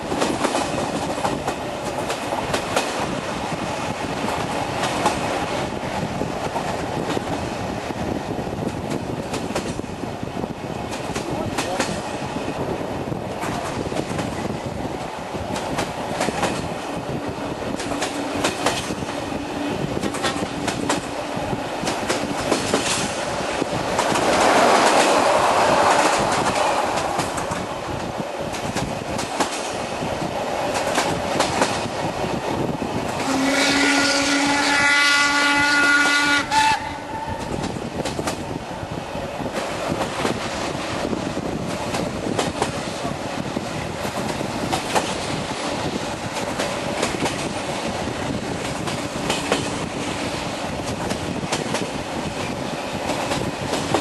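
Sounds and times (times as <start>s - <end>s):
train wheels clattering on rails: 0.0s - 54.0s
steam train whistle: 33.2s - 37.6s.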